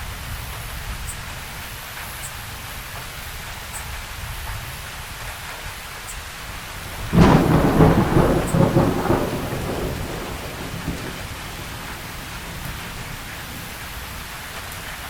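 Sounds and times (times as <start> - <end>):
steady rain: 0.0 - 15.0
thunderclap rumbling: 6.8 - 15.0.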